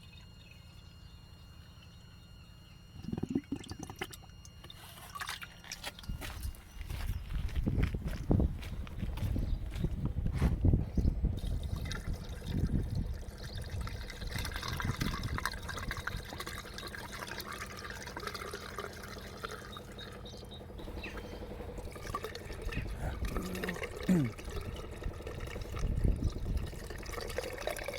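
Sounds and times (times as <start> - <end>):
water pouring and splashing: 24.6 - 27.9.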